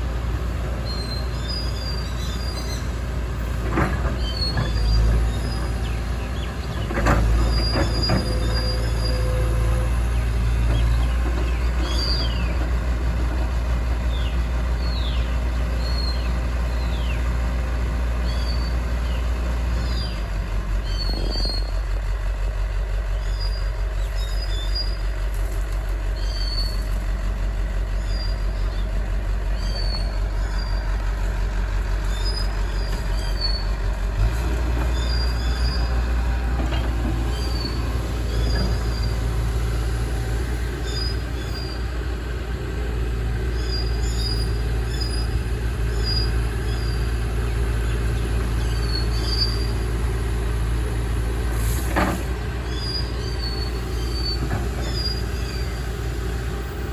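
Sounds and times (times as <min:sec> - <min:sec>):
excavator diesel engine drone: 0:00.0 - 0:56.9.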